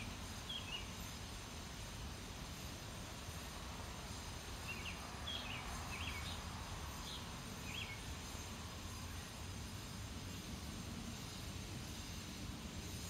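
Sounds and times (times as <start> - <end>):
bird chirping: 0.0 - 1.2, 4.6 - 9.4.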